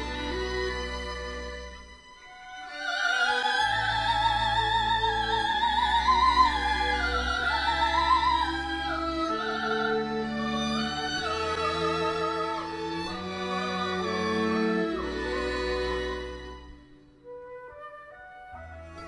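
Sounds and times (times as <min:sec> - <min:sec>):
woman singing classical melody: 0:02.2 - 0:16.7.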